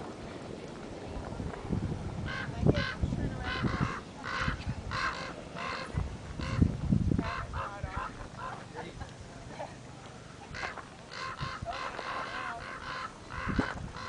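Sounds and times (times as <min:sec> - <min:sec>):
bird honking: 0:02.3 - 0:06.6, 0:07.2 - 0:08.1, 0:10.5 - 0:14.0.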